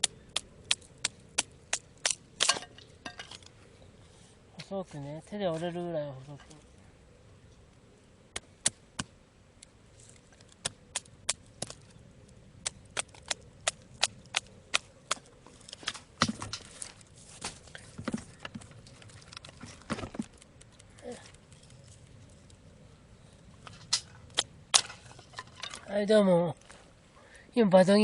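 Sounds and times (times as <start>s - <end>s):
rustling: 9.6s - 27.1s.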